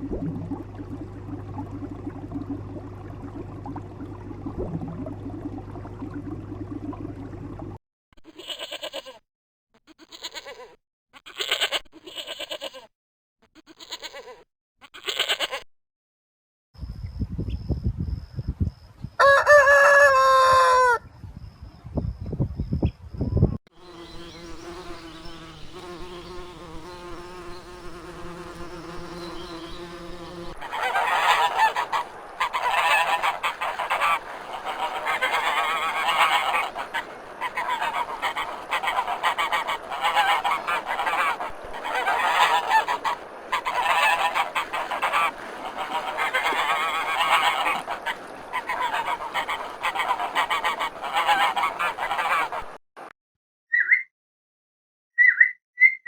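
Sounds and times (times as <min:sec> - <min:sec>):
chorus of animal calls: 0:29.0 - 0:52.8
low-pitched animal call: 0:29.4 - 0:52.7.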